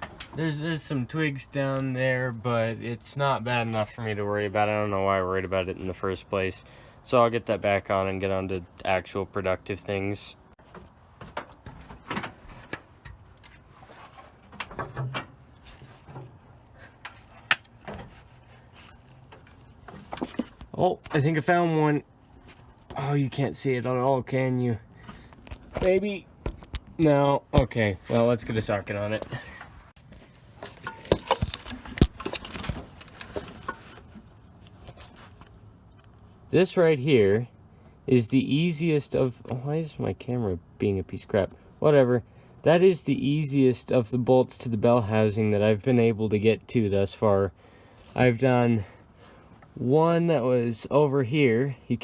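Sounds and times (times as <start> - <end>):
hand tools clinking: 30.6 - 34.0.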